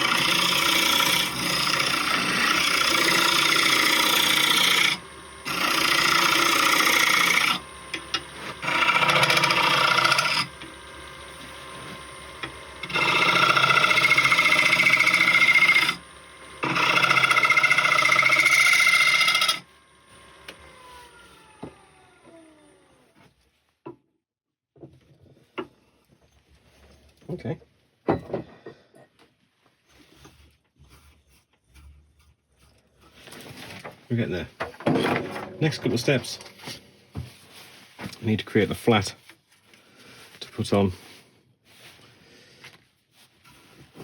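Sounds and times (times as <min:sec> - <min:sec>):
lathe tool scraping wood: 0:00.0 - 0:23.0, 0:33.0 - 0:39.2
lathe motor whine: 0:00.0 - 0:23.3.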